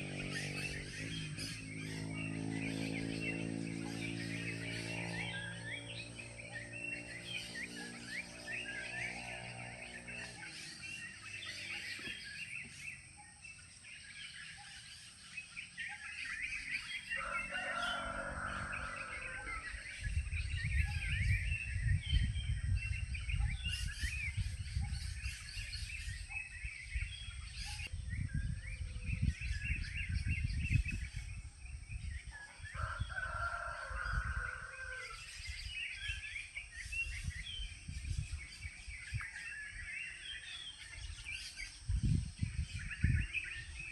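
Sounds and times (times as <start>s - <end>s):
small birds chirping: 0.0s - 43.9s
rooster crowing: 17.0s - 19.8s, 32.4s - 35.5s.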